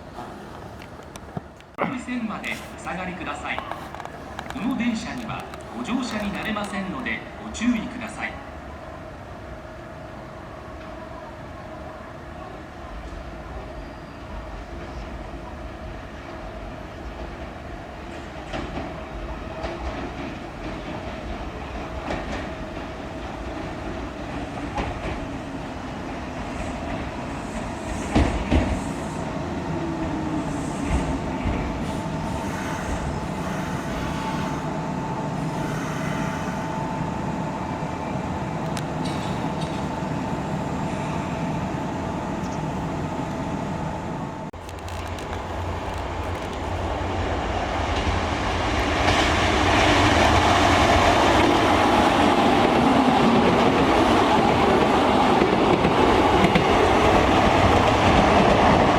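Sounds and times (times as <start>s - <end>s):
steady train whine: 0.0s - 58.9s
train wheels knocking on rail joints: 27.9s - 28.8s, 47.9s - 58.9s.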